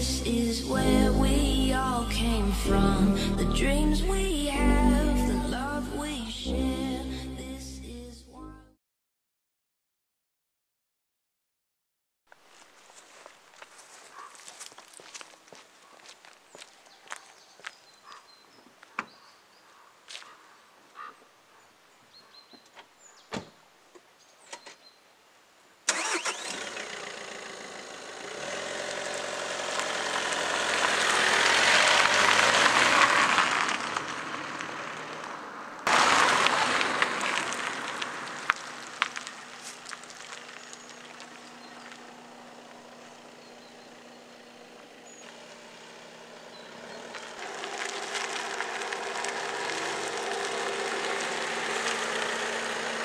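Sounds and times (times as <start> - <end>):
car engine idling: 0.0 - 7.2, 25.9 - 53.0
car engine starting: 0.0 - 8.0, 25.9 - 53.0.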